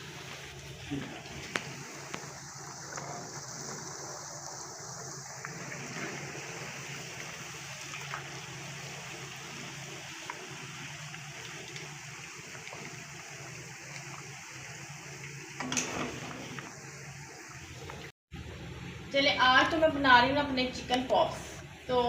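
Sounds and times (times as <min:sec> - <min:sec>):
oil crackling: 0:00.0 - 0:18.1
chicken sizzling in hot oil: 0:00.0 - 0:18.8.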